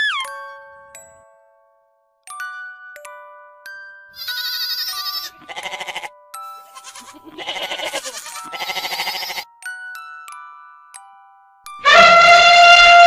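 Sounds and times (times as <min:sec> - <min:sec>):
soft chime-like music: 0:00.0 - 0:11.8
goats bleating: 0:04.2 - 0:06.1, 0:06.7 - 0:09.4.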